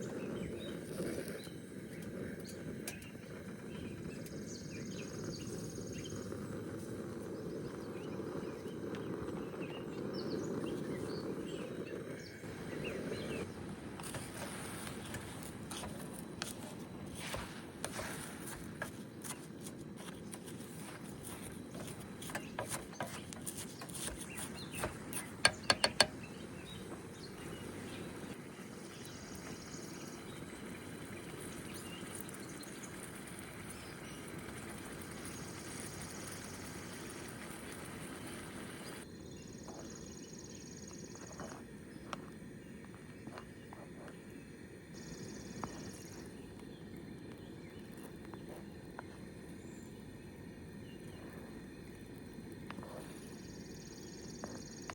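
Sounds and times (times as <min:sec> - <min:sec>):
sharp taps: 0:21.8 - 0:26.3.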